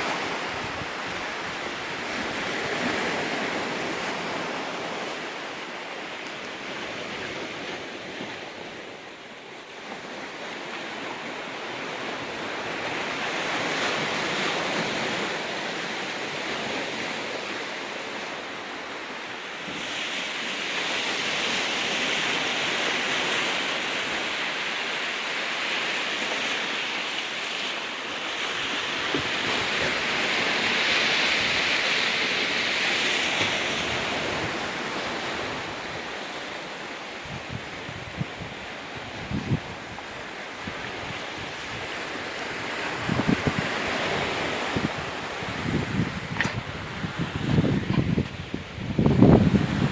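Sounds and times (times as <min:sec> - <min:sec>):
wind on microphone: 0:00.0 - 0:05.4, 0:28.4 - 0:49.9
waves washing on rocky beach: 0:00.0 - 0:49.9.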